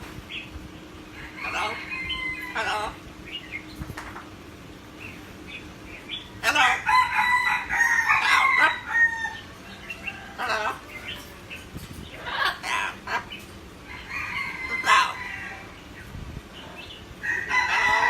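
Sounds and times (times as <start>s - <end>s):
bird crowing call: 1.1s - 3.4s, 6.4s - 11.3s, 12.3s - 15.8s.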